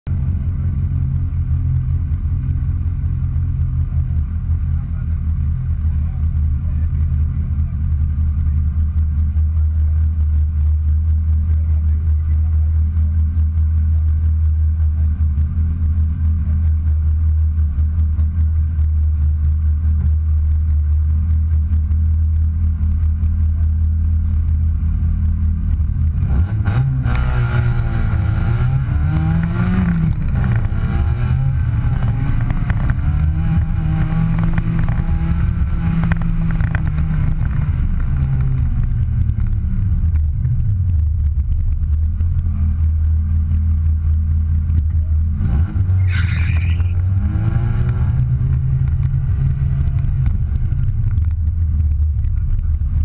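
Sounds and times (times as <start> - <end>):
car engine idling and revving: 0.0 - 53.0.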